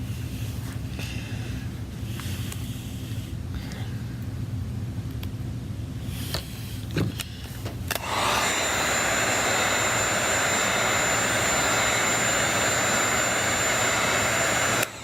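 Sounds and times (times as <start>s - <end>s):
hot-air blower running: 7.2s - 15.0s.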